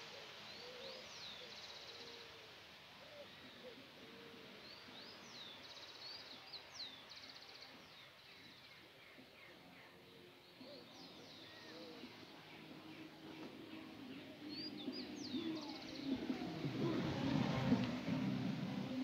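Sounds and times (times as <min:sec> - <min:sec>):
quiet outdoor hiss: 0:00.0 - 0:19.0.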